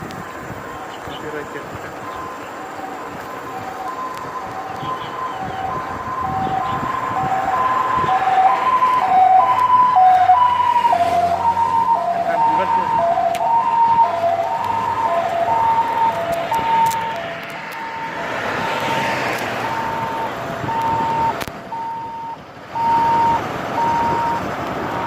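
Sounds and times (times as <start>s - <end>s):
road noise: 0.0s - 25.0s
two-tone siren: 0.7s - 25.0s
short high siren beeps: 19.6s - 25.0s.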